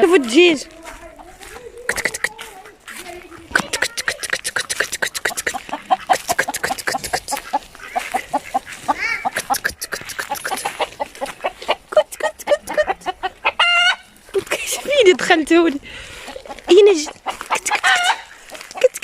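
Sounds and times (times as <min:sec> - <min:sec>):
chickens clucking: 0:00.0 - 0:19.0
chicken squawking: 0:01.8 - 0:02.5, 0:03.3 - 0:14.2, 0:16.3 - 0:19.0.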